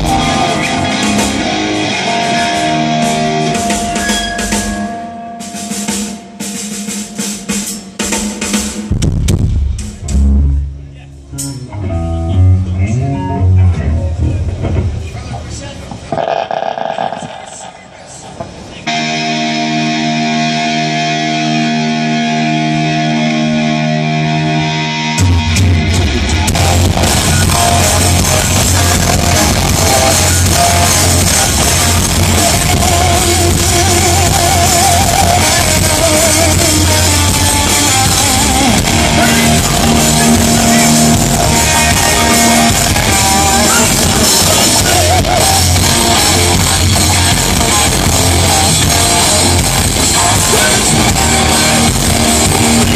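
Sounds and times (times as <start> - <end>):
rock band playing: 0.0 - 15.0, 16.0 - 52.9
sustained guitar chord: 18.8 - 34.3.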